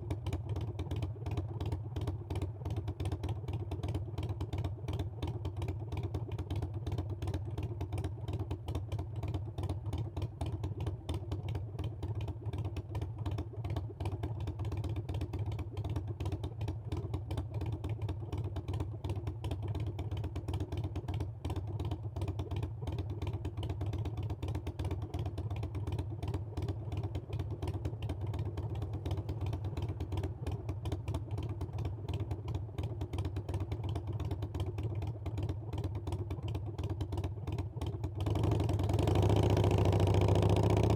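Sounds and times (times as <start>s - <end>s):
motorcycle engine running: 9.0s - 40.9s.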